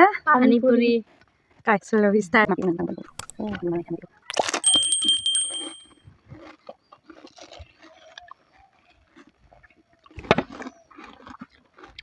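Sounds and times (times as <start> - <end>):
crunching and chewing: 6.4 - 12.0.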